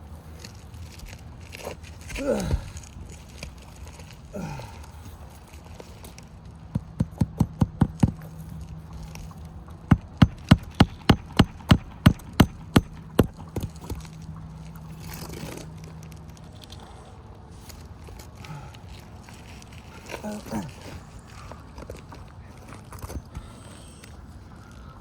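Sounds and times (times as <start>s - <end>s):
hammer striking nails: 6.7s - 8.3s, 9.9s - 14.1s.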